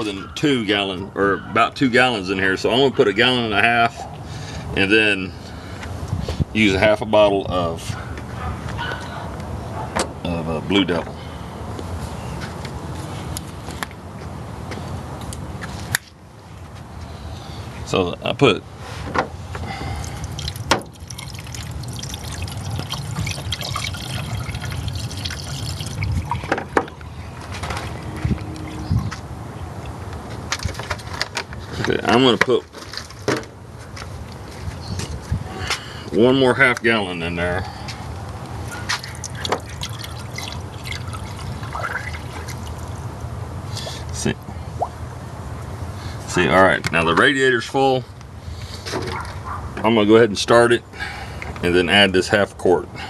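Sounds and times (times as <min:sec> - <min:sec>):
water gurgling into radiator: 0:20.0 - 0:26.6, 0:39.0 - 0:42.9.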